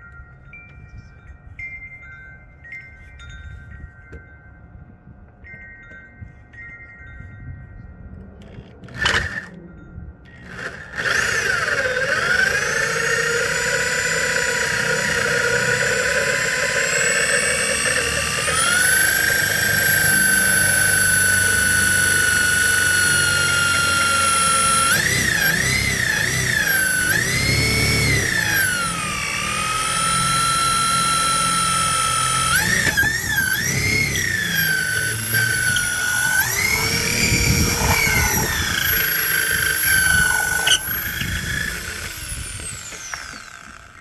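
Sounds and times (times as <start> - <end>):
electric grinder motor whining: 8.4 - 9.6, 10.3 - 44.0.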